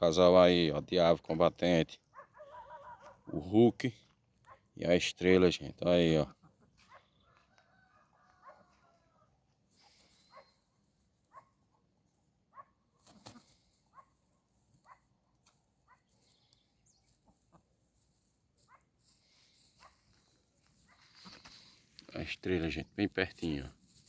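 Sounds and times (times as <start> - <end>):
chickens clucking softly: 6.0 - 10.5, 17.0 - 17.8.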